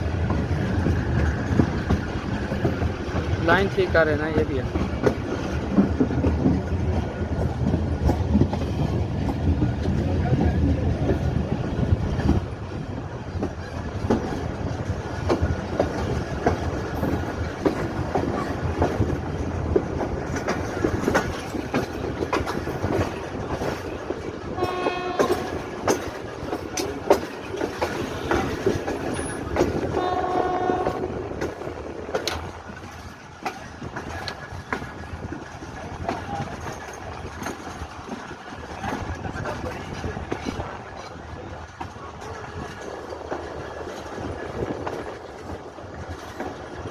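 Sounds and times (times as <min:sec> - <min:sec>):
train running with rumble: 0:00.0 - 0:46.9
wheels clacking over rail joints: 0:00.0 - 0:46.9
train horn: 0:24.6 - 0:25.7, 0:29.9 - 0:31.2.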